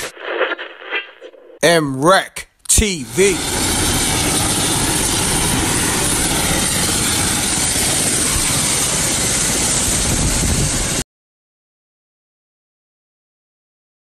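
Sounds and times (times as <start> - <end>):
helicopter rotor and engine: 2.8 - 11.0.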